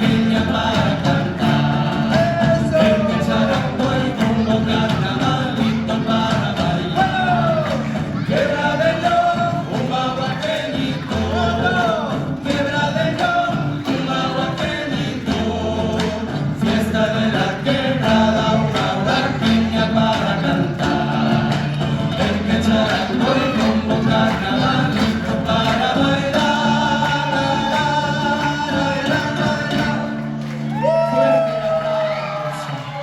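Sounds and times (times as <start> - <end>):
voices singing folk song: 0.0 - 33.0.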